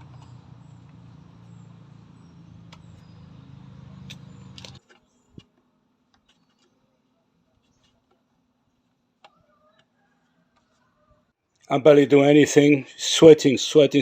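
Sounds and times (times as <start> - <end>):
low engine hum: 0.0 - 4.8
sharp clicks: 2.6 - 3.0, 4.0 - 5.5.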